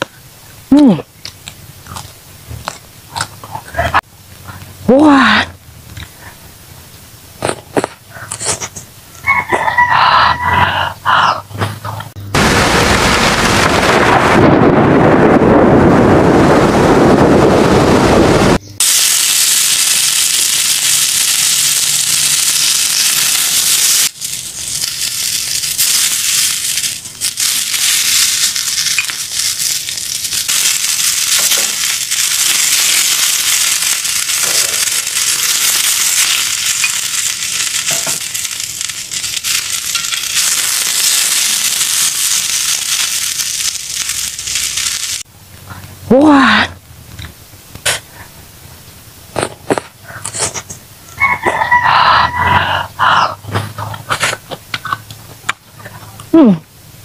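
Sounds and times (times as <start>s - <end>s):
lettuce sizzling in hot oil: 18.8s - 45.3s.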